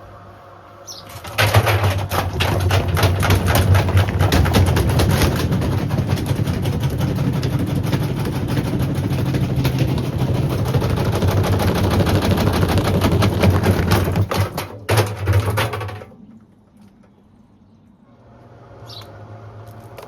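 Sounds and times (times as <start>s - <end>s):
washing machine motor hum: 0.0s - 16.6s
bottle clattering in drum: 1.2s - 9.8s, 12.9s - 16.1s.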